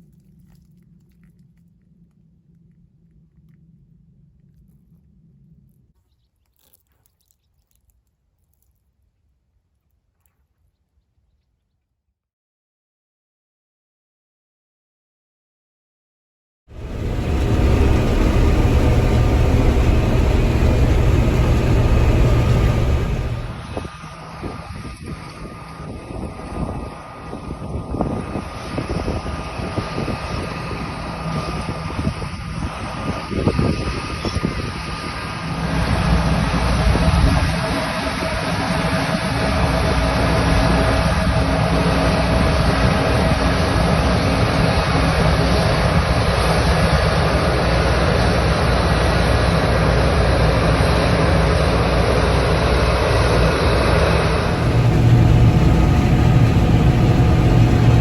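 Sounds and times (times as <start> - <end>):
heavy machine engine whining: 16.7 - 23.8, 54.2 - 58.0
low rumbling buffets: 16.7 - 24.0, 54.1 - 58.0.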